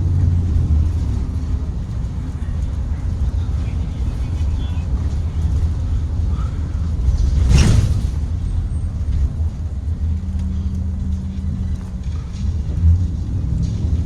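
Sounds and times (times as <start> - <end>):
bus engine and road rumble: 0.0 - 14.0
short sharp rattle: 6.4 - 9.2
thump: 7.1 - 8.4.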